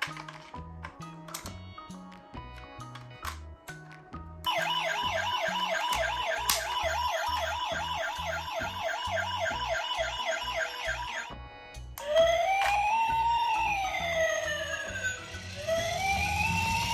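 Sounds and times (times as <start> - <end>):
ambulance siren yelping: 4.5 - 11.4, 12.0 - 16.9.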